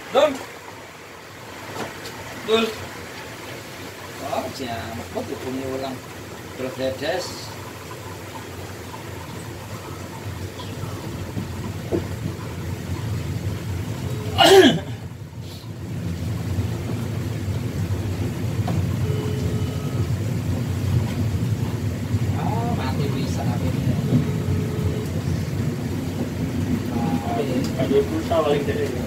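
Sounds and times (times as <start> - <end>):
train rumbling through station: 9.2 - 29.0.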